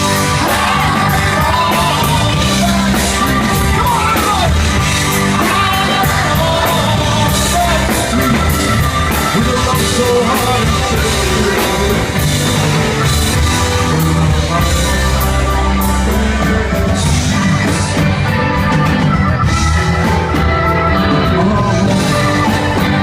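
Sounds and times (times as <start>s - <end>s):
rock band playing loudly: 0.0s - 23.0s.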